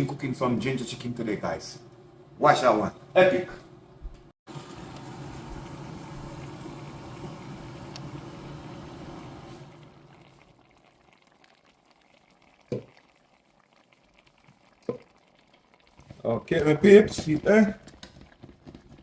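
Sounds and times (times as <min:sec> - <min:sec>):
chicken simmering in a pot: 0:04.5 - 0:19.0.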